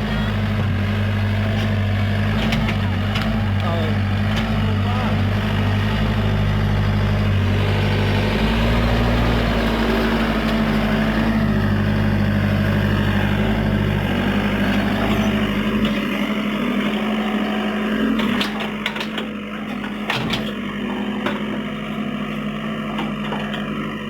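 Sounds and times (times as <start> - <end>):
excavator diesel engine rumbling: 0.0 - 24.0.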